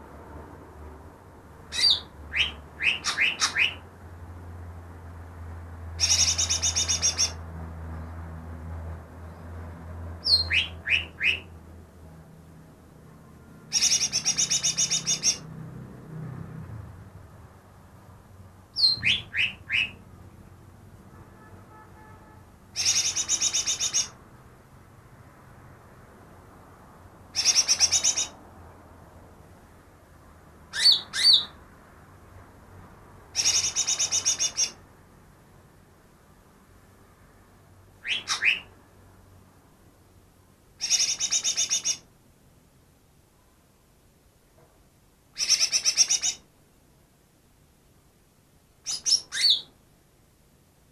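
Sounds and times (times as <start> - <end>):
bird chattering trill: 1.7 - 3.8, 6.0 - 7.4, 10.2 - 11.5, 13.7 - 15.4, 18.8 - 20.0, 22.8 - 24.2, 27.4 - 28.4, 30.7 - 31.6, 33.4 - 34.8, 38.0 - 38.7, 40.8 - 42.0, 45.4 - 46.4, 48.9 - 49.7
bird whistled notes: 1.8 - 3.8, 6.0 - 7.4, 18.8 - 20.0, 48.9 - 49.7.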